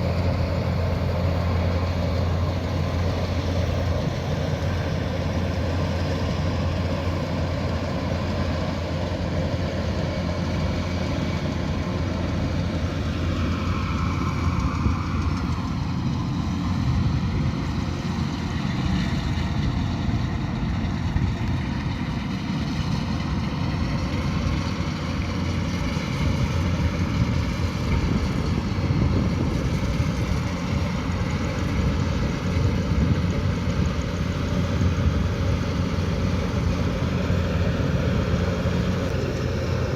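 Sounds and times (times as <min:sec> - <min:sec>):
diesel engine drone: 0:00.0 - 0:39.9
threshing machinery noise: 0:00.0 - 0:39.9.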